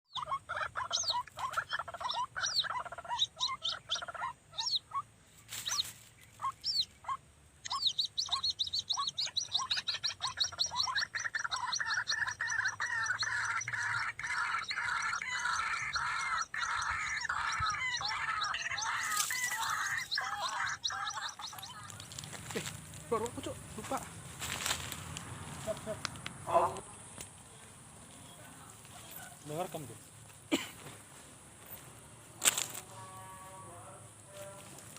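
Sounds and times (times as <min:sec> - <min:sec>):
waterhen calling harsh notes: 0:00.1 - 0:22.3.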